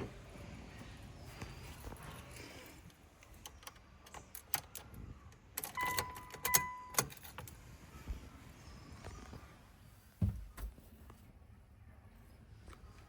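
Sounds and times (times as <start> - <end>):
car electronic chime beeps: 5.8 - 7.0.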